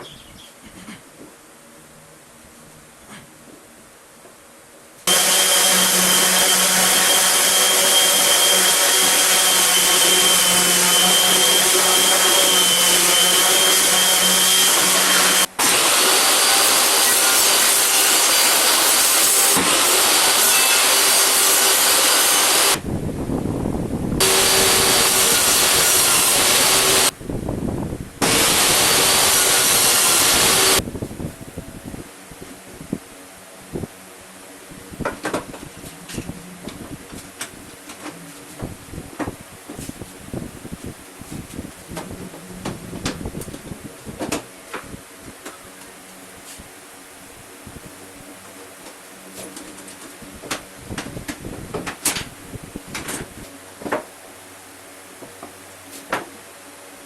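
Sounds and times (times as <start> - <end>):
power tool cutting wood: 5.1 - 22.8, 24.2 - 27.2, 28.2 - 30.8.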